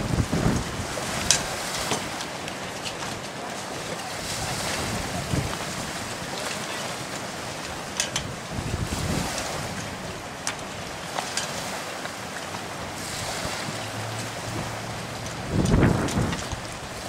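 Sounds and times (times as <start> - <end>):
water rushing along boat hull: 0.0 - 17.0
water slapping: 0.0 - 17.0
wind buffeting microphone: 0.0 - 17.0.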